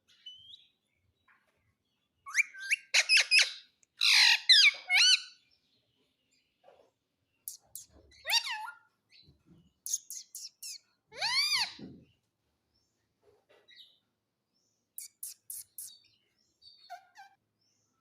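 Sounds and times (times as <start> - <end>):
parrot chirping: 2.3 - 5.4, 7.5 - 8.9, 9.8 - 11.8, 15.0 - 16.1, 16.7 - 17.4
parrot squawking: 2.3 - 5.4, 8.2 - 8.8, 9.9 - 11.8, 16.8 - 17.4.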